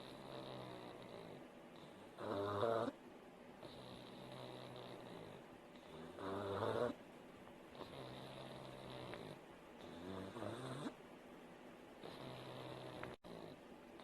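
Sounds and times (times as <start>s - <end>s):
dog snoring: 0.0s - 3.0s, 3.6s - 7.0s, 7.7s - 11.0s, 12.0s - 14.0s.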